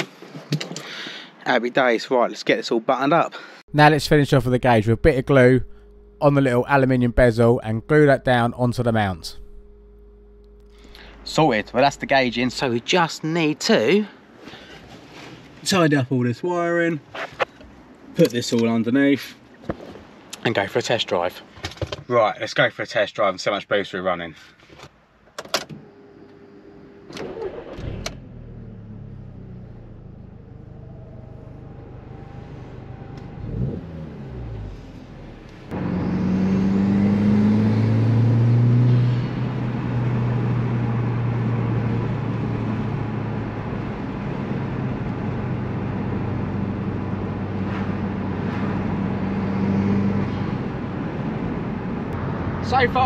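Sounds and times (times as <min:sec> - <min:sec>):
car engine accelerating: 0:03.8 - 0:12.8, 0:25.9 - 0:53.0.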